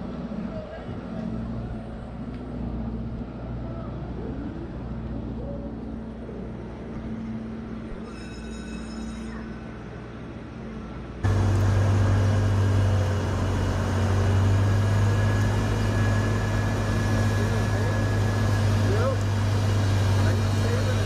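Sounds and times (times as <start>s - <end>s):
car engines idling: 11.2s - 21.0s.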